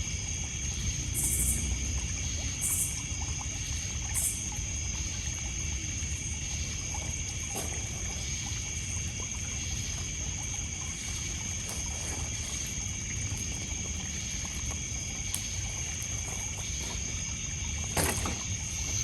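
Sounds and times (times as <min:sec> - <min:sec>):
crickets and insects chorus: 0:00.0 - 0:19.0
wood fire crackling and popping: 0:07.3 - 0:19.0.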